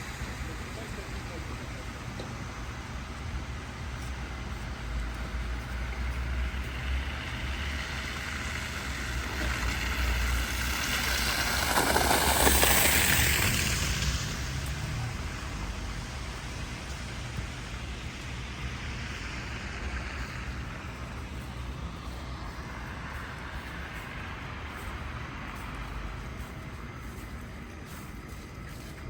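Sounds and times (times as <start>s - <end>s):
street traffic rumble: 0.0s - 29.0s
vehicle passing close by: 6.1s - 17.4s.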